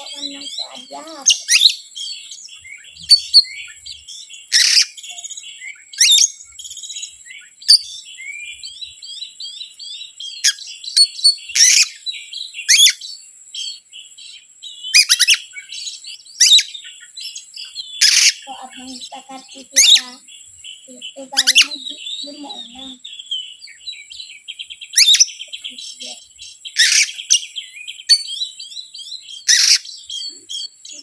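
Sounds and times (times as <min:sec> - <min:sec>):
thin steady high tone: 0:00.0 - 0:04.3
songbird chirps and whistles: 0:00.0 - 0:31.0.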